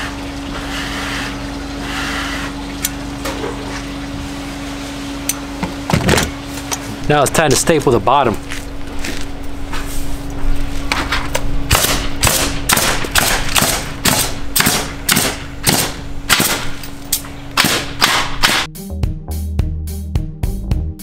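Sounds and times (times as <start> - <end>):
steady low hum: 0.0 - 18.7
stapler firing: 17.6 - 18.7.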